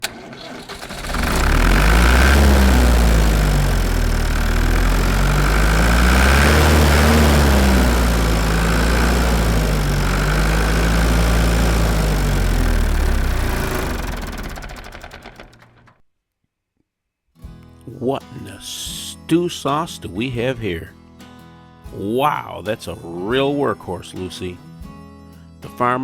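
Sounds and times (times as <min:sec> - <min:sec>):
tractor engine running: 0:00.0 - 0:15.9.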